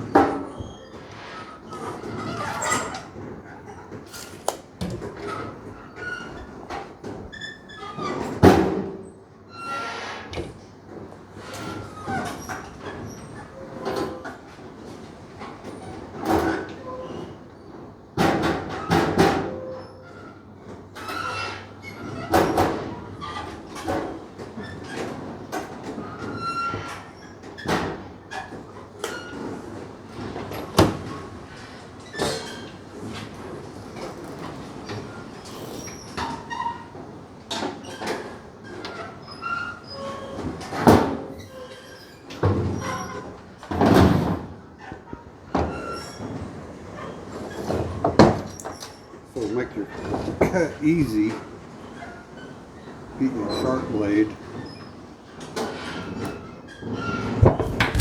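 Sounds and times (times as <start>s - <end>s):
short squeaks: 55.8s - 58.0s
knocks and clanks: 57.2s - 58.0s.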